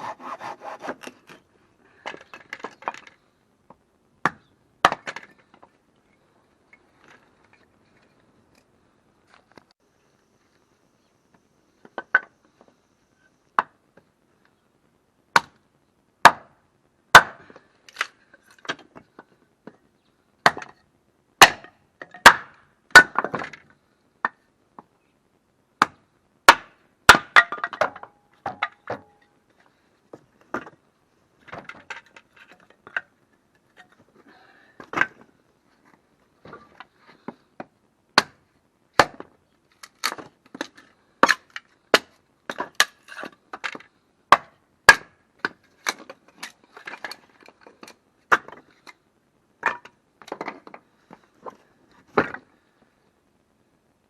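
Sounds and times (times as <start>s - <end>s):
axe striking firewood: 4.2s - 5.3s, 15.3s - 15.6s, 16.2s - 18.1s, 20.4s - 20.8s, 21.4s - 23.6s, 25.8s - 29.2s, 38.2s - 38.4s, 39.0s - 39.3s, 40.0s - 46.1s, 48.3s - 48.6s, 52.1s - 52.4s.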